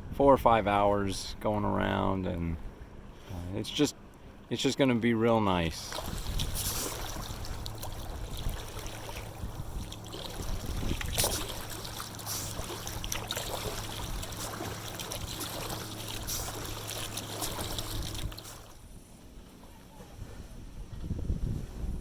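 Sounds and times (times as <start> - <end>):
paddle splashing water: 5.7 - 18.8.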